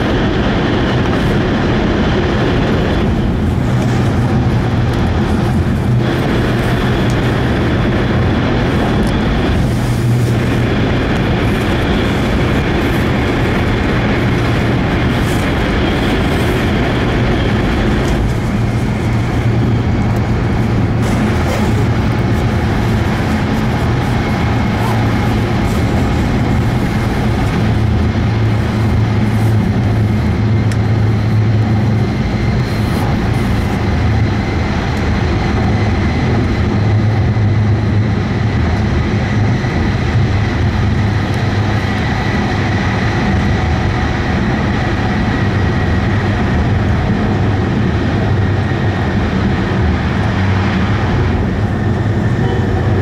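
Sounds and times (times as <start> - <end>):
wheels rumbling on track: 0.0 - 53.0
faint high whine: 51.6 - 53.0.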